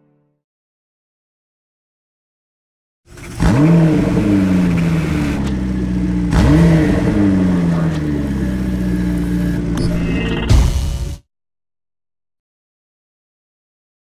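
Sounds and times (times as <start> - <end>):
sports car engine revving: 3.1 - 9.8.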